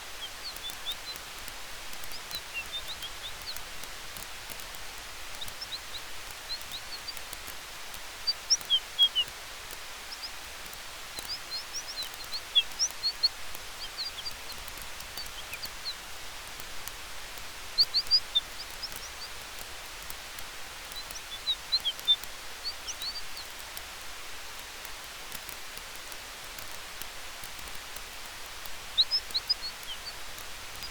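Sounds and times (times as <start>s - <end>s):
campfire crackling: 0.0s - 30.9s
wind through trees: 0.0s - 30.9s
high bird chirps: 8.2s - 9.3s, 11.2s - 16.0s, 17.8s - 19.4s.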